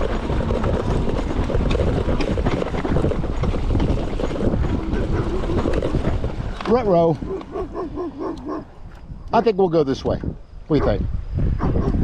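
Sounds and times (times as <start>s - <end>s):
bike rattles and knocks: 0.0s - 7.6s
bike rolling on dirt trail: 0.0s - 10.4s
wind rumbling on microphone: 0.0s - 12.0s.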